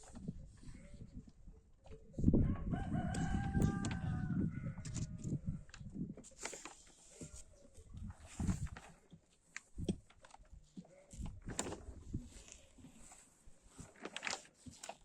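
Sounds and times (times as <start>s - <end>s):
rooster crowing: 2.4s - 4.9s.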